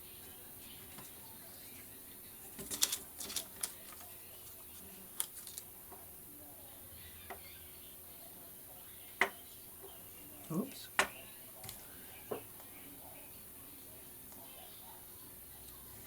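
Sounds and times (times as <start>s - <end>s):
paper crinkling: 2.5s - 5.7s.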